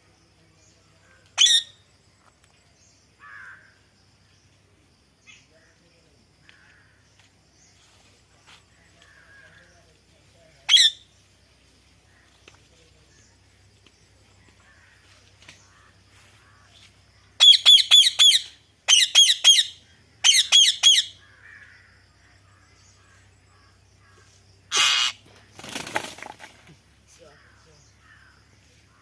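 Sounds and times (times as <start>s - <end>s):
parrot squawking: 10.7s - 11.0s, 24.7s - 25.2s.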